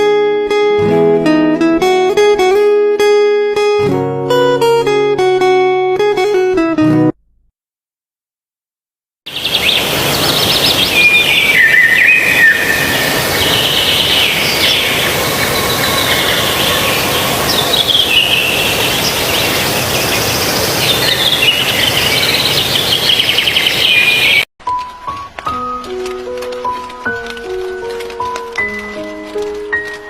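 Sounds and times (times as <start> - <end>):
wild birds calling and singing: 9.3 - 24.5
steady background hiss: 9.4 - 23.4.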